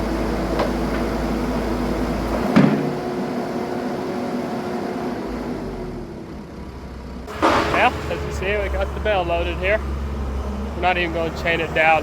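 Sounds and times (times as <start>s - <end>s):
diesel engine running: 0.0s - 12.0s
sharp metallic clunk: 7.3s - 8.5s.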